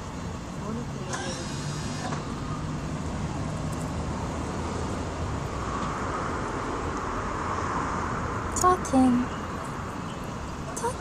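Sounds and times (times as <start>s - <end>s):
road traffic noise: 0.0s - 11.0s
vehicle passing: 0.0s - 11.0s.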